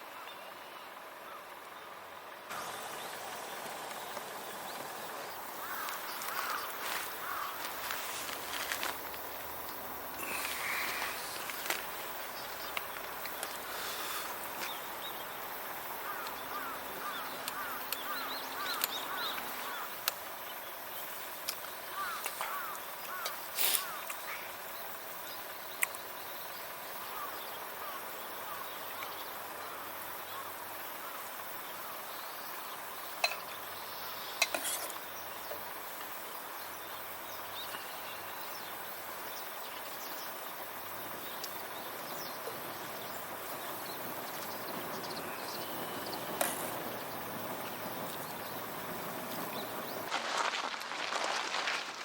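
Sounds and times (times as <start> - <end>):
rustle: 0.0 - 52.0
campfire hissing: 1.0 - 52.0
burning wood popping: 3.8 - 14.9, 50.0 - 52.0.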